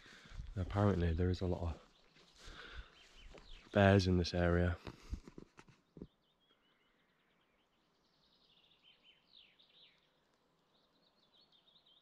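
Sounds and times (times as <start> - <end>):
faint bird chirps: 5.7 - 12.0.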